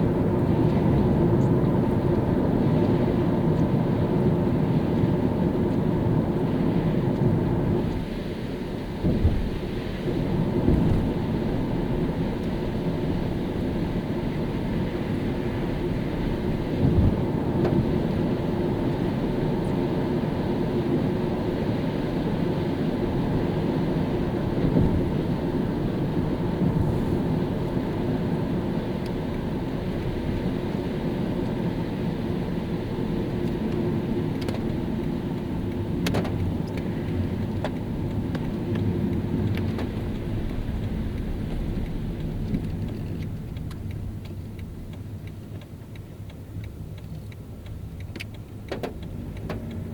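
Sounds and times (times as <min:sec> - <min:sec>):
tyre rumble on wet road: 0:00.0 - 0:49.9.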